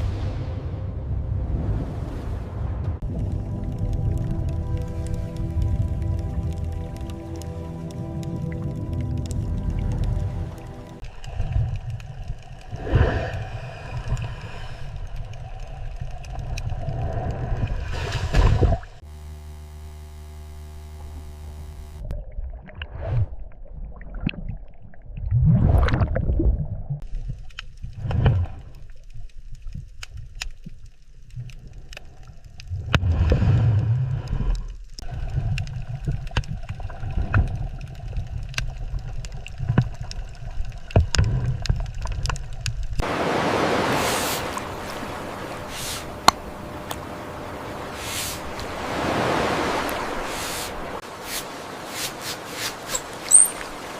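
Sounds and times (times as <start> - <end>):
low droning tone: 3.0 - 11.9, 19.0 - 22.6, 44.5 - 48.6
underwater swirling and gurgling water: 3.0 - 19.0, 22.0 - 53.9.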